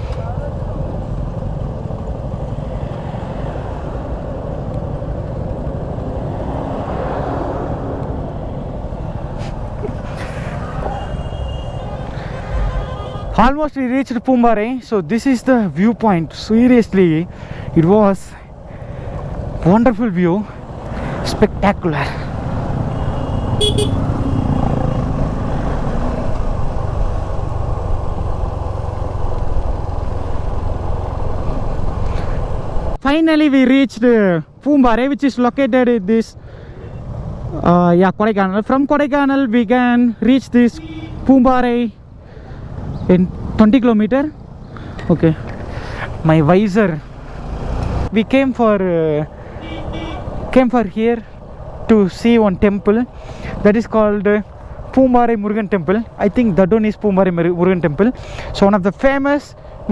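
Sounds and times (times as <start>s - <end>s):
motorcycle engine rumble: 0.0s - 13.5s, 16.1s - 33.0s
wind and road noise: 0.0s - 59.9s
motorcycle engine running: 22.3s - 32.0s
short horn beeps: 23.0s - 24.1s.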